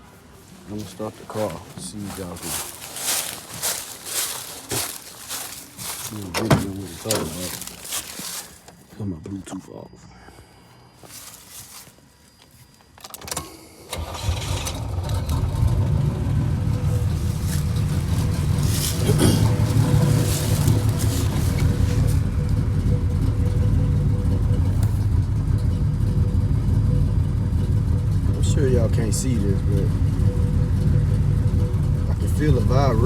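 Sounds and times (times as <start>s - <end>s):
engine starting and idling roughly: 13.3s - 33.0s.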